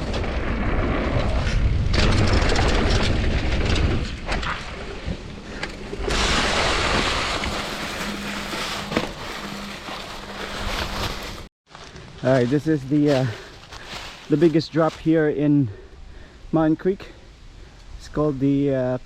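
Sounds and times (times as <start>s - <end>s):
tyres rolling over gravel: 0.0s - 11.5s
bike rattling and knocking: 1.8s - 11.4s.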